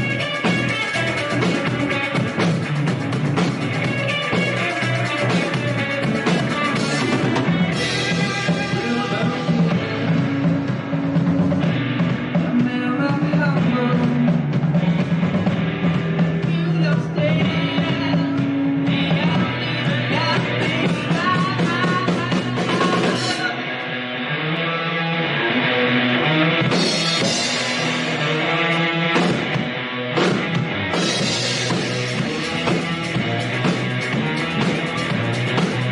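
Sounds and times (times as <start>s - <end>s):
drum kit: 0.0s - 23.6s, 26.2s - 35.9s
bass guitar: 0.0s - 35.9s
electric guitars: 0.0s - 35.9s
person singing: 3.9s - 10.2s, 12.3s - 14.7s, 16.4s - 29.0s.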